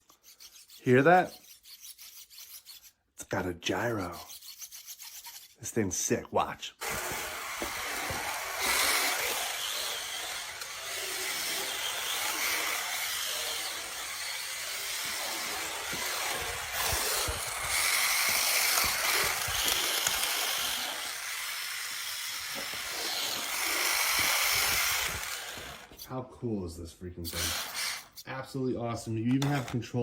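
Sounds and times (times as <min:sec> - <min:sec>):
small electric motor whirring: 0:04.2 - 0:05.6, 0:06.8 - 0:26.1, 0:27.3 - 0:28.2.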